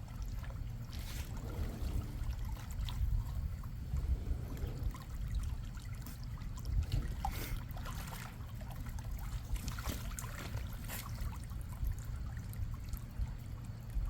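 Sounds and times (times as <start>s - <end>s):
low rumble: 0.0s - 9.8s
small water splashes: 0.0s - 14.0s
water sloshing in a pool: 0.0s - 14.0s.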